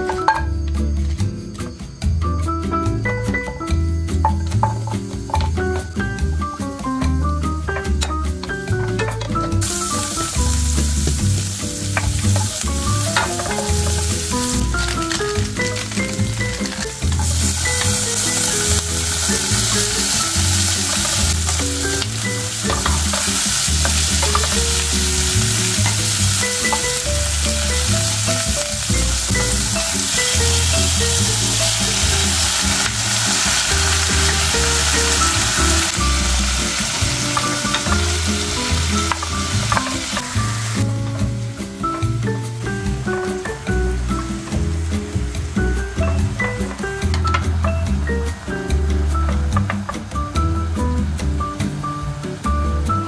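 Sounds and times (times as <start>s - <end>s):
food sizzling in butter: 7.8s - 49.6s
spatula stirring in pan: 10.7s - 28.4s.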